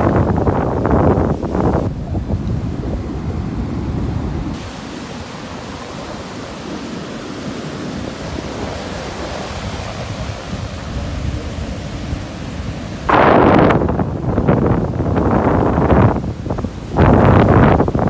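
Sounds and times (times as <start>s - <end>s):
surf breaking on beach: 0.0s - 18.0s
wind rumbling on microphone: 0.0s - 18.0s.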